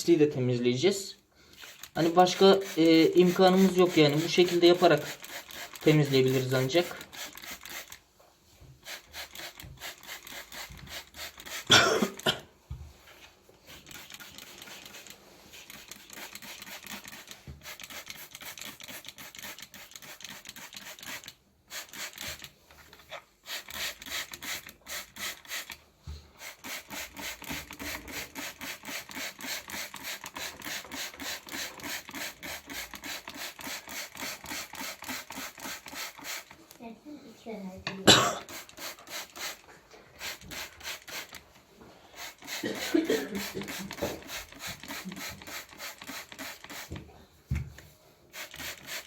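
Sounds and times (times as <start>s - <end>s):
scrubbing rasping rub: 1.6s - 8.0s.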